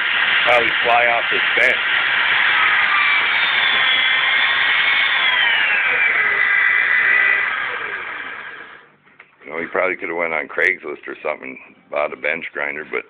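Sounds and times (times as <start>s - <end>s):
bench grinder motor whine: 0.0s - 8.9s.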